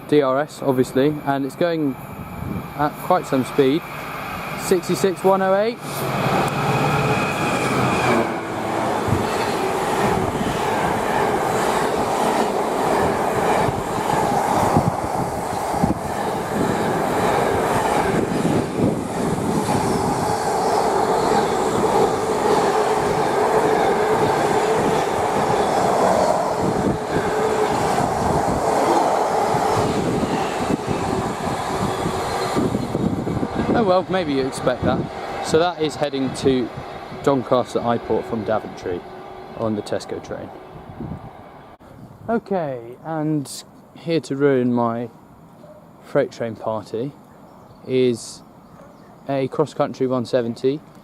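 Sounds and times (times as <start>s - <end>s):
freight train passing: 0.0s - 42.4s
wheels clattering on rails: 5.9s - 37.8s.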